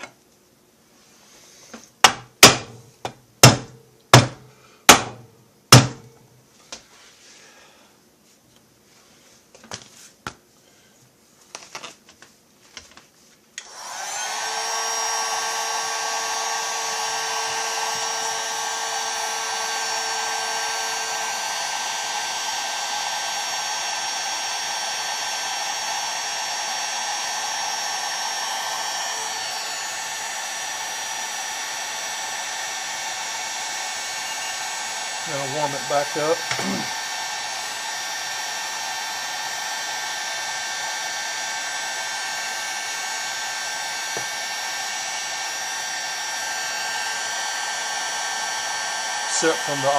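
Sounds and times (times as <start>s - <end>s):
heat gun running: 2.0s - 2.8s, 3.4s - 6.1s, 13.6s - 49.9s.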